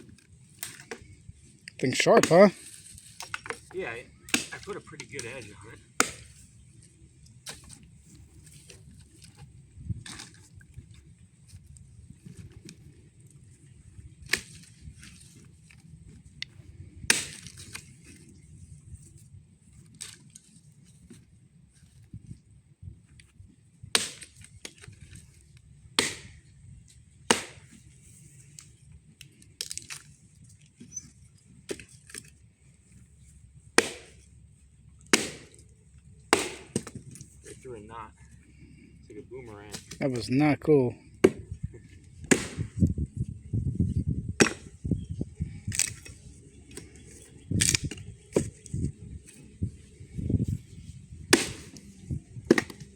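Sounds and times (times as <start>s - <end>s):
axe chopping firewood: 0.1s - 1.1s, 2.0s - 6.5s, 7.4s - 10.4s, 14.2s - 18.2s, 23.9s - 25.2s, 25.9s - 26.4s, 27.2s - 28.0s, 29.3s - 30.1s, 31.6s - 32.3s, 33.7s - 34.4s, 35.1s - 35.7s, 36.3s - 37.4s, 39.7s - 40.0s, 41.2s - 42.9s, 44.3s - 45.0s, 45.6s - 49.4s, 51.2s - 52.9s
axe chopping wood: 4.3s - 5.4s, 6.0s - 6.4s, 14.2s - 14.7s, 17.1s - 17.8s, 24.0s - 25.0s, 26.0s - 26.4s, 27.2s - 27.8s, 31.7s - 32.3s, 33.8s - 34.3s, 35.1s - 35.6s, 36.3s - 37.2s, 41.2s - 41.6s, 42.2s - 42.8s, 44.4s - 44.9s, 47.5s - 48.6s, 51.3s - 52.9s
wood knocks and cracks: 52.5s - 52.9s.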